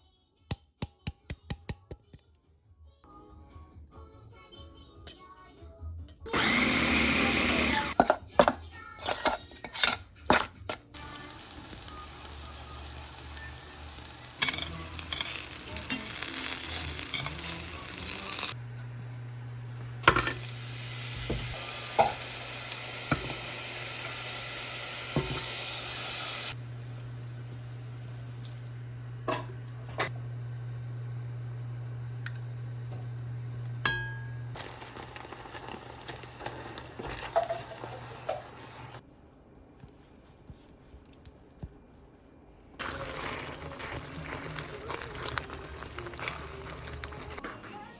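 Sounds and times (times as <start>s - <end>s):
food sizzling in a pan: 10.9s - 30.1s, 34.4s - 39.0s, 42.8s - 47.9s.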